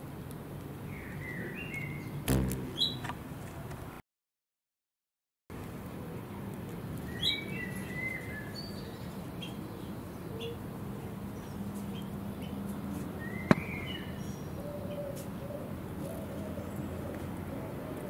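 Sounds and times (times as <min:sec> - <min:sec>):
sharp click: 0:02.3 - 0:03.2.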